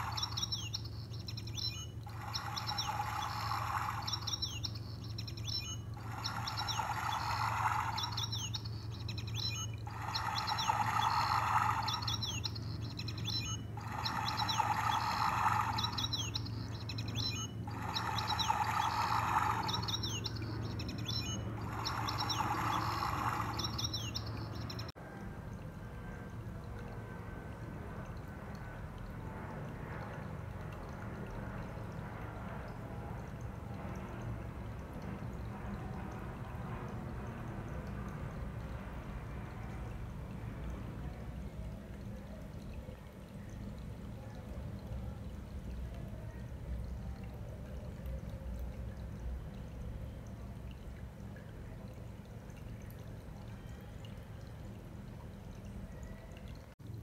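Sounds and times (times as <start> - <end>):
birds chirping: 0.0 - 25.0
steady low hum: 0.0 - 57.0.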